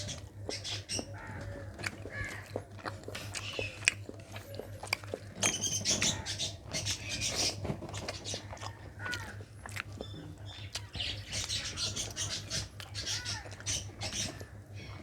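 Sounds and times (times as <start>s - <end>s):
person chewing food: 0.0s - 15.0s
steady low hum: 0.0s - 15.0s
mouth smacks and clicks: 1.8s - 5.8s.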